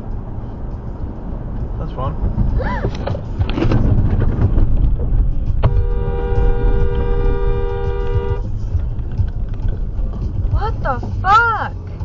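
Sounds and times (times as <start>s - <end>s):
road and engine rumble: 0.0s - 12.0s
car horn two-note blast: 5.6s - 8.5s.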